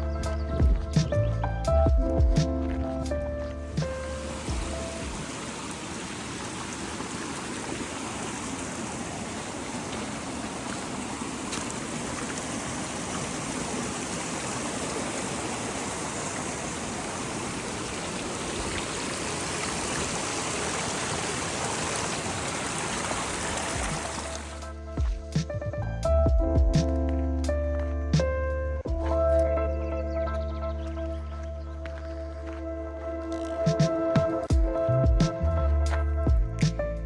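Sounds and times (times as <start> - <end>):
rain and hail falling: 4.2 - 24.6.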